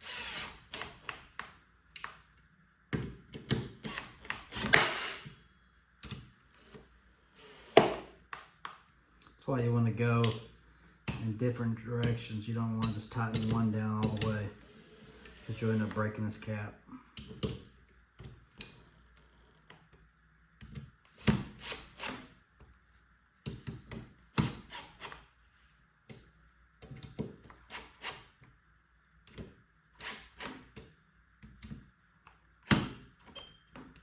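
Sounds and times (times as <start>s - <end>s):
hand tool tightening bolts: 12.0s - 14.4s.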